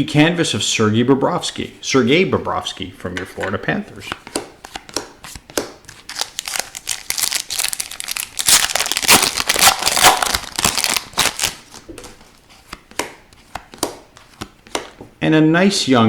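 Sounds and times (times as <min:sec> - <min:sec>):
plastic wrapper crinkling: 0:05.9 - 0:12.4.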